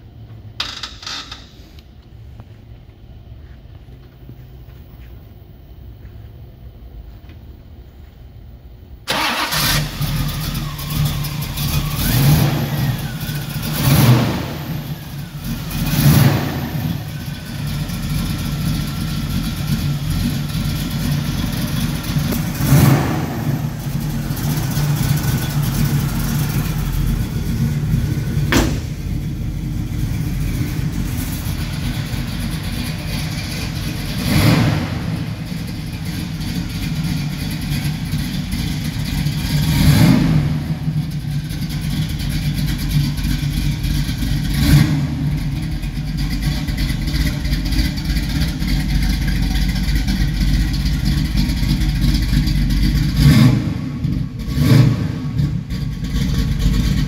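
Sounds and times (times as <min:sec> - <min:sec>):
car engine idling: 0:01.7 - 0:57.0
engine revving: 0:09.1 - 0:18.2, 0:21.7 - 0:37.0, 0:39.2 - 0:41.0, 0:44.4 - 0:45.7, 0:52.9 - 0:57.0.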